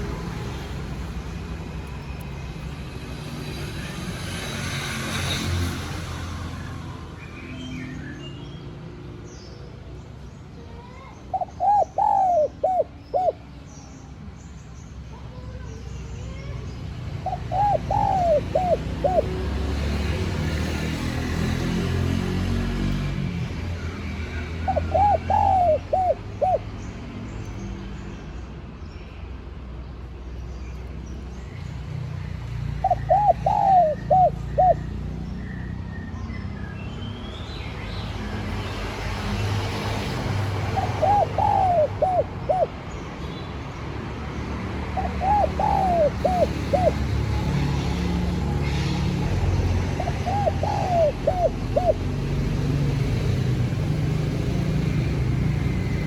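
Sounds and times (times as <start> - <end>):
dove cooing: 11.3 - 13.5, 17.2 - 20.2, 24.6 - 26.7, 32.8 - 35.0, 40.2 - 42.9, 44.9 - 48.8, 49.6 - 52.6.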